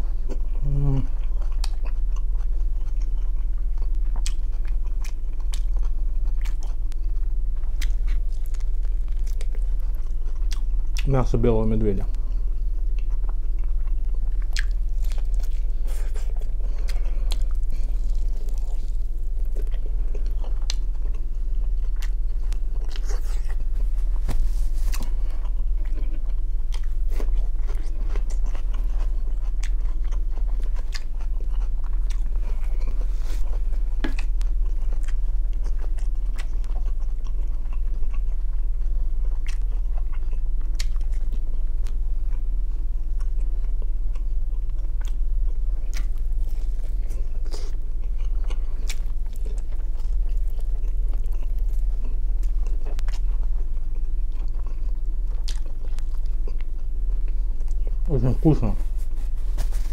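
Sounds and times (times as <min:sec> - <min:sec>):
chewing meat: 0:00.0 - 0:59.9
steady low hum: 0:00.0 - 0:59.9
crisp cucumber crunches: 0:13.0 - 0:38.3.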